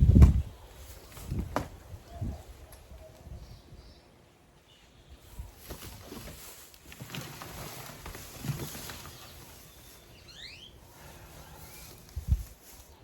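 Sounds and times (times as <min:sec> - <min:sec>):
rustling: 0:05.2 - 0:13.0
bird rising chirps: 0:09.6 - 0:12.0.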